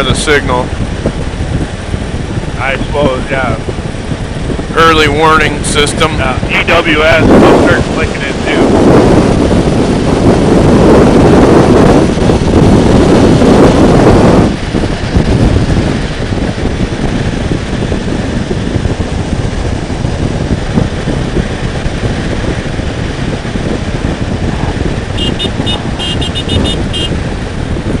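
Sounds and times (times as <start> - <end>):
road noise: 0.0 - 28.0
wind buffeting microphone: 0.0 - 28.0
motorcycle engine: 7.3 - 28.0.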